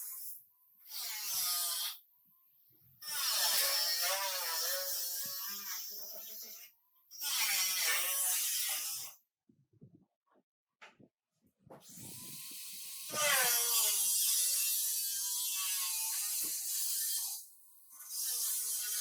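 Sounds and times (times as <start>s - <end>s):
power tool whining and hissing: 11.8s - 19.0s.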